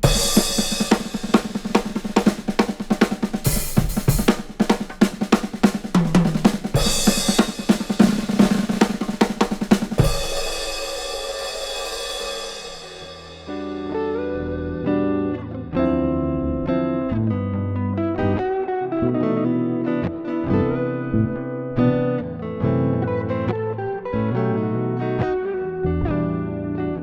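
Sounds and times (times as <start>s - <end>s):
cymbal crash: 0.0s - 5.0s, 6.3s - 14.0s
drum kit played fast: 0.0s - 14.0s.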